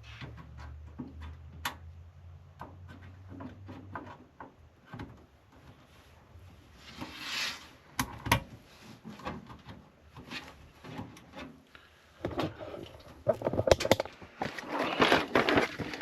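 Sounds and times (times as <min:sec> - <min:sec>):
clattering: 0:12.2 - 0:16.0
computer parts clicking and knocking: 0:12.2 - 0:16.0.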